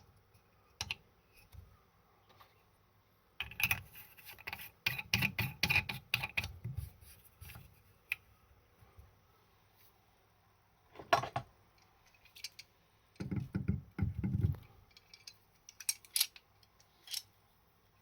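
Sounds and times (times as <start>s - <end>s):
hard objects clicking and knocking: 3.4s - 6.8s, 11.0s - 17.3s.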